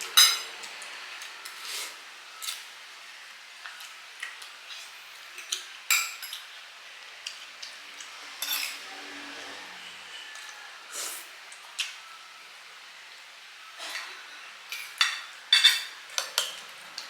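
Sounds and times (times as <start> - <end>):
cutlery clinking against plates: 0.0 - 0.8, 3.6 - 6.5, 8.4 - 8.9, 13.8 - 17.0.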